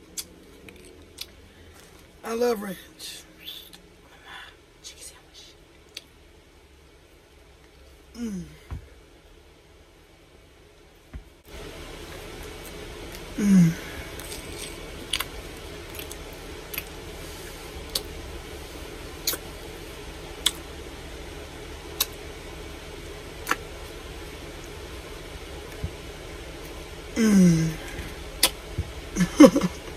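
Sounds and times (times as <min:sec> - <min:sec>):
background hiss: 0:01.1 - 0:29.9
person humming mm: 0:08.1 - 0:08.8, 0:13.3 - 0:14.7, 0:27.2 - 0:28.5
wet chewing mouth clicks: 0:14.2 - 0:17.0, 0:19.2 - 0:19.5, 0:20.4 - 0:20.6, 0:22.0 - 0:22.2, 0:23.4 - 0:23.7.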